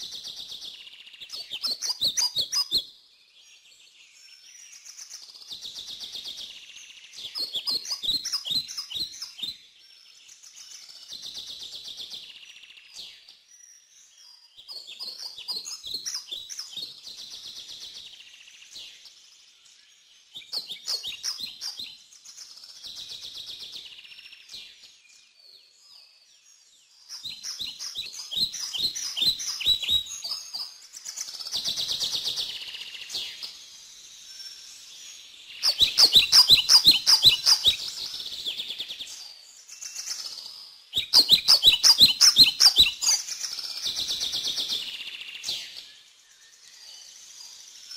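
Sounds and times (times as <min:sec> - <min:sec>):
birds chirping: 0:26.9 - 0:47.9.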